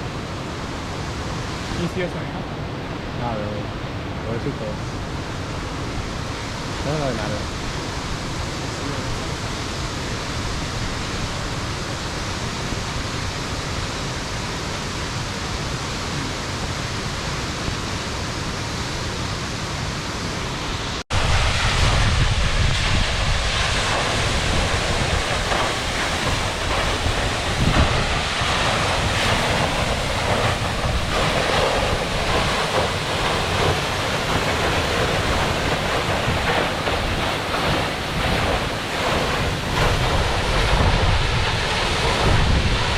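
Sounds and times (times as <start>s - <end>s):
waterfall rushing: 0.0s - 42.9s
wind buffeting microphone: 21.1s - 42.9s.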